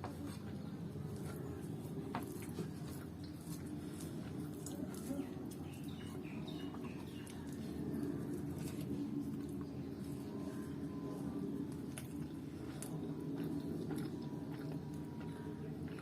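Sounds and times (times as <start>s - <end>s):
low background hum: 0.0s - 16.0s
person chewing: 11.9s - 16.0s.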